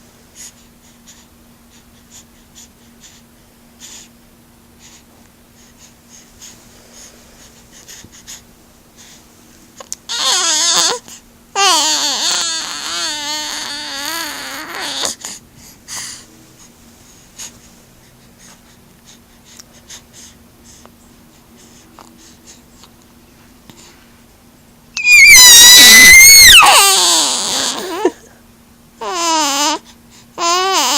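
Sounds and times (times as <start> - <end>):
cat yowling: 25.0 - 28.1.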